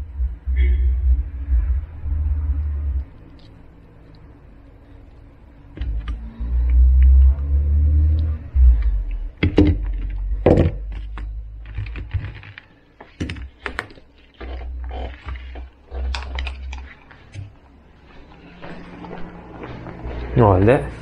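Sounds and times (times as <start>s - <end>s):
dull low thumps: 0.0s - 3.1s, 8.4s - 11.5s.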